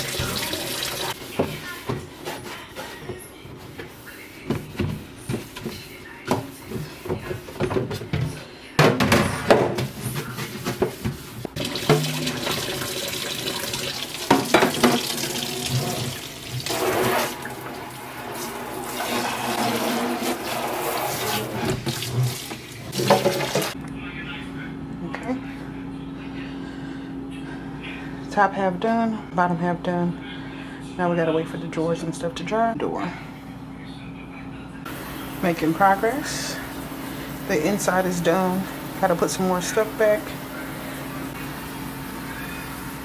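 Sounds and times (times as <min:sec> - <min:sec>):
plastic parts clattering in sink: 0:06.4 - 0:17.6, 0:18.4 - 0:23.8
tap running into a sink: 0:10.7 - 0:16.8.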